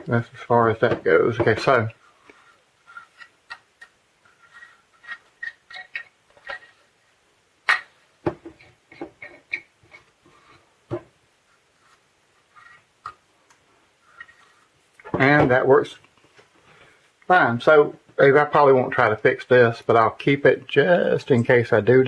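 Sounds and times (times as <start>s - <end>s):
faint rubbing of plastic: 1.3s - 3.6s, 4.2s - 6.9s, 11.4s - 13.2s, 14.0s - 15.0s.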